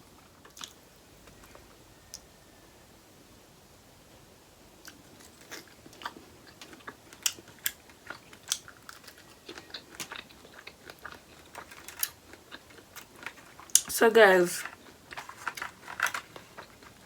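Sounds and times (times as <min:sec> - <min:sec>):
person chewing seafood: 0:04.8 - 0:13.9, 0:14.6 - 0:17.0.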